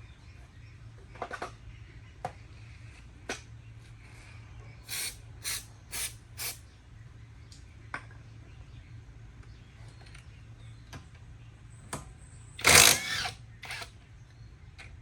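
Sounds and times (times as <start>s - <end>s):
short hissing sprays: 4.9s - 6.6s.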